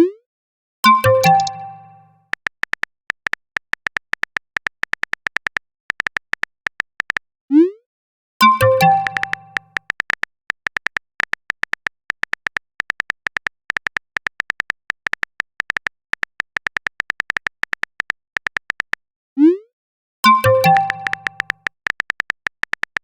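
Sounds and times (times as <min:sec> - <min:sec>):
notification chime: 0:01.0 - 0:02.0, 0:08.4 - 0:09.6
smartphone keyboard typing clicks: 0:01.0 - 0:07.2, 0:08.5 - 0:19.0, 0:20.3 - 0:23.0.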